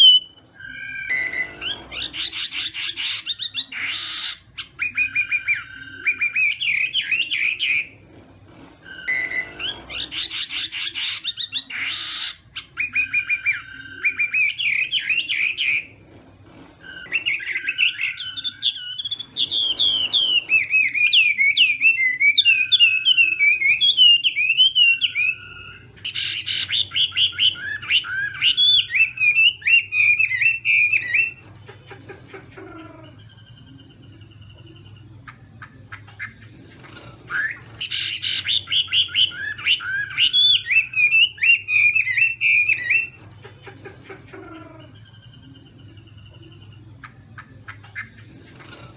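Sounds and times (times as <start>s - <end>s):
bird singing whistled phrases: 0.0s - 7.9s, 8.9s - 15.9s, 16.9s - 31.4s, 37.3s - 43.2s.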